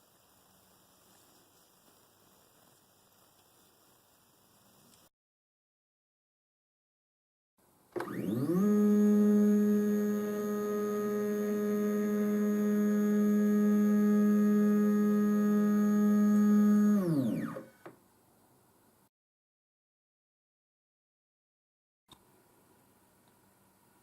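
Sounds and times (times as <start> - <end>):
spindle motor whining: 8.0 - 17.9.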